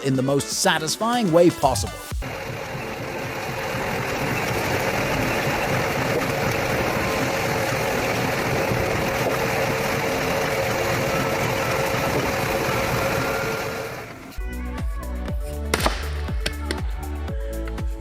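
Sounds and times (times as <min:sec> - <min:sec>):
log-peeling machine drone: 0:01.5 - 0:14.4.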